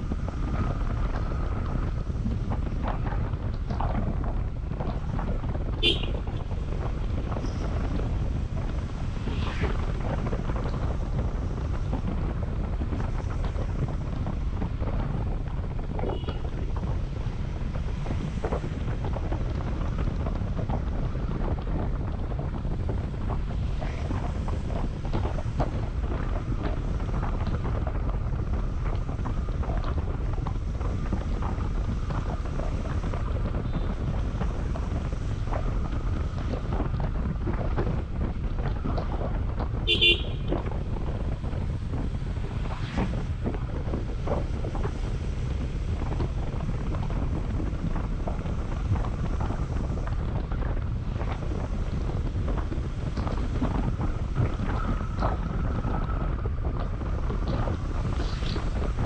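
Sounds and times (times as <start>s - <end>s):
road noise: 0.0s - 59.0s
wind buffeting microphone: 0.0s - 59.0s
motorcycle engine: 39.8s - 40.5s.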